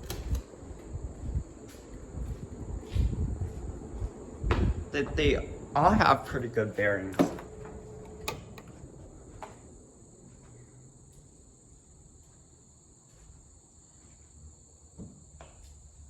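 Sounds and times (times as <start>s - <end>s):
ceiling fan blades whooshing: 0.0s - 12.5s.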